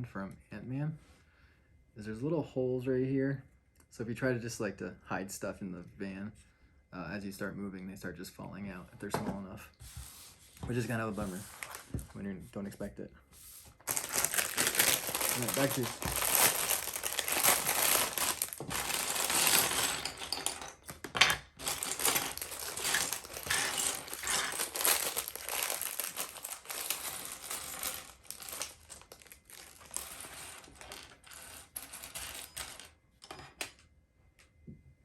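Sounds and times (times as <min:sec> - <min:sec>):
plastic bag crinkling: 0:11.2 - 0:12.0, 0:13.7 - 0:31.4
plastic bricks clattering: 0:13.9 - 0:32.9.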